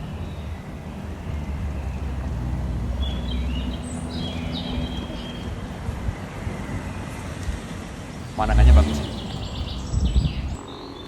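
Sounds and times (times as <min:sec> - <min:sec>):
steady low rumble: 0:08.2 - 0:10.8
quick bird chirps: 0:08.4 - 0:11.0.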